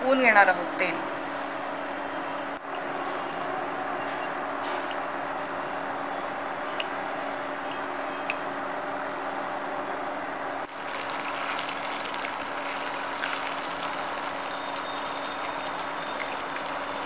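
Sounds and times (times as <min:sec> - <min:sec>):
prawns sizzling in hot oil: 0:10.7 - 0:17.0.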